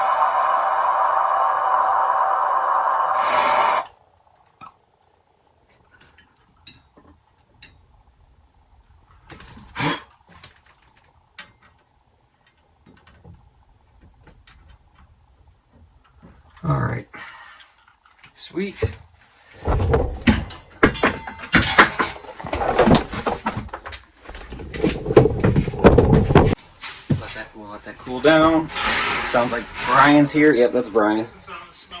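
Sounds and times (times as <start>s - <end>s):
torch flame hissing: 0.0s - 3.9s.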